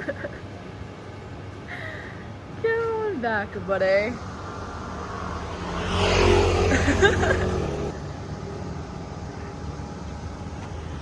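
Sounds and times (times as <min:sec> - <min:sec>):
motor scooter engine running: 0:05.4 - 0:08.0.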